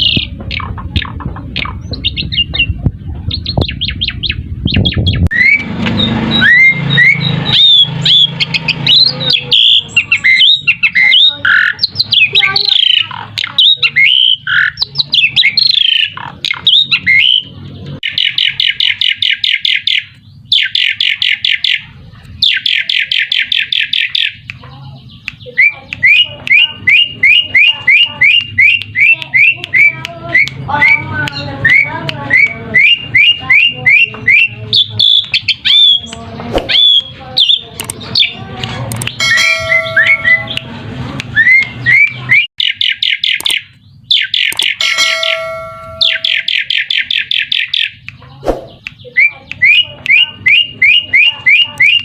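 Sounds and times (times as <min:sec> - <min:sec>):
starling whistles and chirps: 0:00.0 - 0:21.8, 0:25.2 - 0:38.4, 0:46.0 - 0:52.0
buzzy bird trills: 0:39.0 - 0:40.6, 0:41.4 - 0:52.0.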